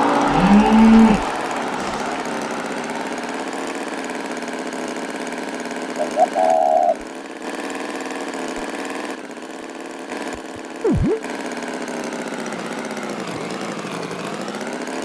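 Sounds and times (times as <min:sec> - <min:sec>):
engine running steadily: 0:00.0 - 0:06.0.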